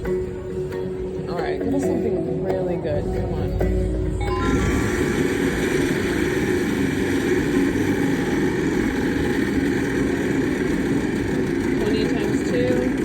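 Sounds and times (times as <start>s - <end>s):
slot machine bonus wheel spinning: 4.2s - 13.0s.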